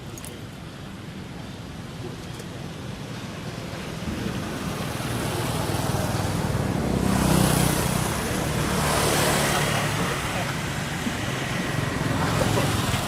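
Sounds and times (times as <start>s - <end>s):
vehicle passing by: 4.4s - 13.0s.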